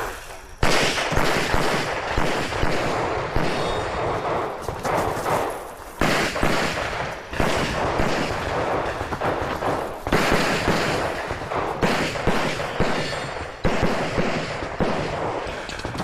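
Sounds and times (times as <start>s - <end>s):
pistol fired in rapid strings: 0.6s - 15.6s.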